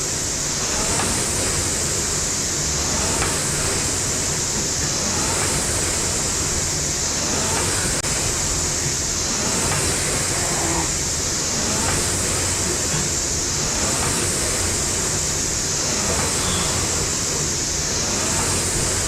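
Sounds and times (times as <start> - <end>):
rowing machine fan whooshing: 0.0 - 19.0.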